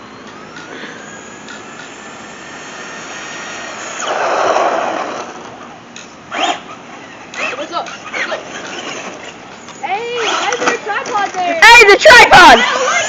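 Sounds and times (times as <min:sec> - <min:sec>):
rc car electric motor whining: 0:00.0 - 0:05.6, 0:06.3 - 0:13.0.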